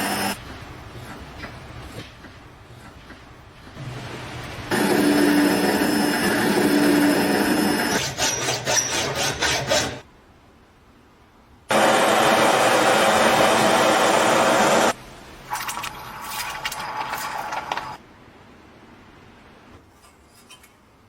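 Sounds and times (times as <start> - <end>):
power tool on metal: 4.7 - 10.0.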